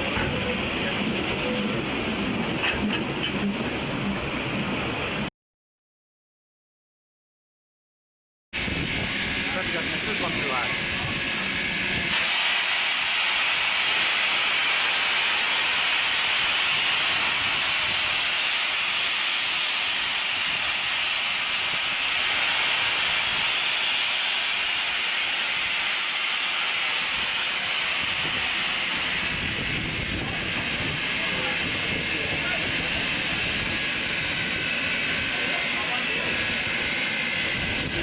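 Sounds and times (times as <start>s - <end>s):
steam hissing: 8.6s - 38.0s.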